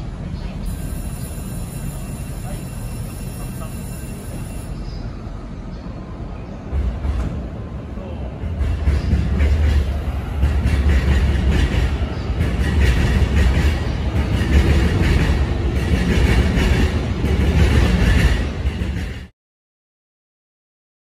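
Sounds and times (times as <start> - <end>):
electric train rumbling: 0.0 - 19.3
wheels knocking on rail joints: 8.4 - 19.3.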